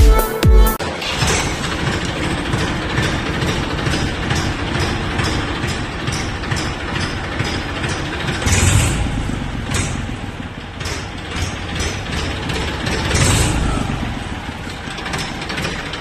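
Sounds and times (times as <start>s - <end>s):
music: 0.0s - 0.8s
tractor diesel engine running: 0.0s - 16.0s.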